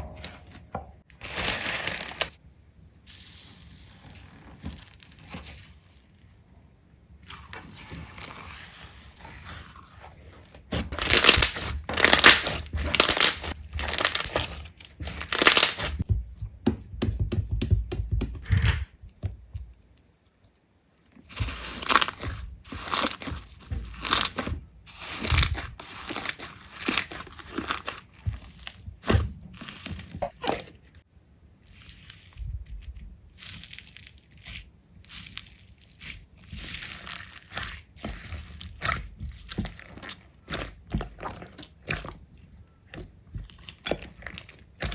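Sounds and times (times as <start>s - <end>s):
slime crackling when squeezed: 11.0s - 14.5s, 15.1s - 16.0s.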